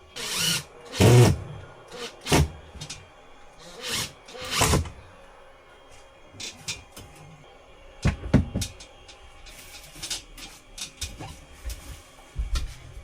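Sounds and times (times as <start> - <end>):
wooden knocks and clunks: 8.0 - 9.0.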